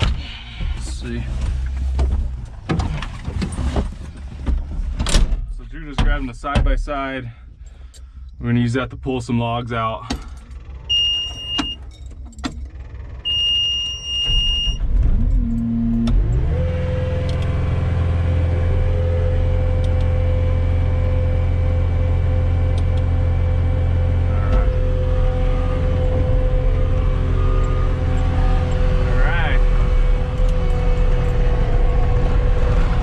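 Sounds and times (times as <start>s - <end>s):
diesel engine cranking and running: 9.7s - 33.0s
warning beeps: 10.9s - 11.8s, 13.3s - 14.8s, 24.3s - 29.8s.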